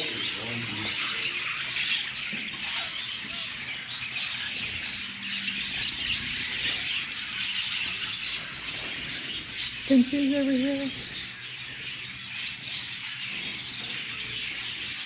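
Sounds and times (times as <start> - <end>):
cage birds chirping: 0.0 - 15.0.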